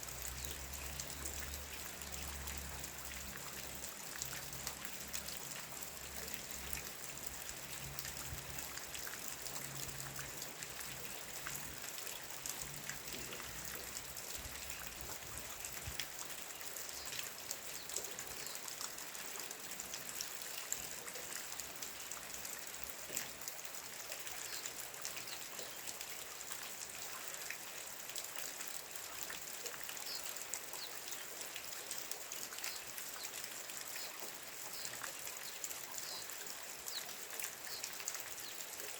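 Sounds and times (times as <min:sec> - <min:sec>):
rain drops ticking: 0:00.0 - 0:38.9.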